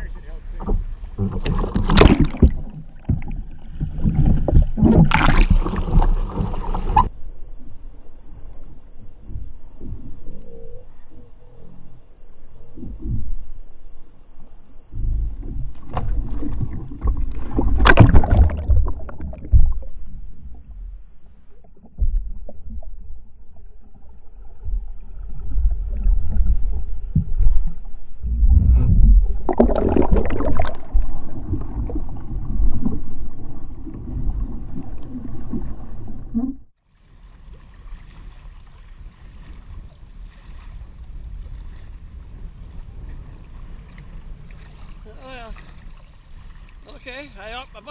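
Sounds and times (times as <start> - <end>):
water sloshing around kayak: 0.1 - 7.1, 29.4 - 47.9.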